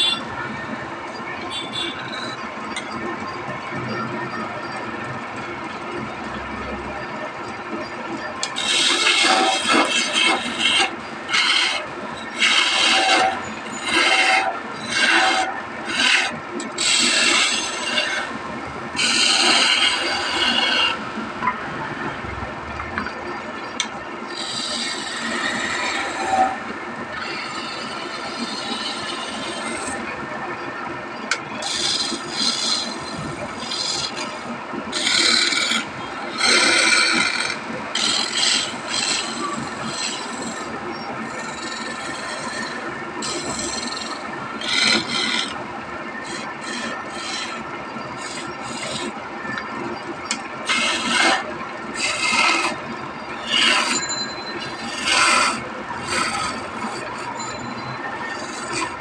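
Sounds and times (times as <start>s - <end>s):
steady background hum: 0.0s - 59.0s
wood being scraped by hand: 8.4s - 18.3s, 19.0s - 21.0s, 31.6s - 40.6s, 41.3s - 45.6s, 50.6s - 52.8s, 53.4s - 54.0s, 54.6s - 57.3s.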